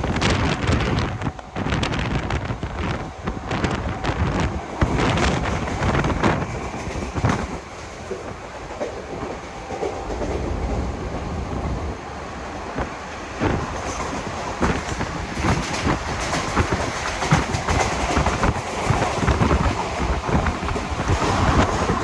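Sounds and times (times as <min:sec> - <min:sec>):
train wheels clattering over rail joints: 0:00.0 - 0:11.7, 0:12.6 - 0:22.0
train rumbling: 0:00.0 - 0:22.0.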